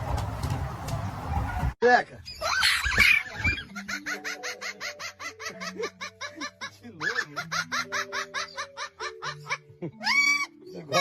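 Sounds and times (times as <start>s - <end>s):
person laughing rapidly: 3.5s - 11.0s.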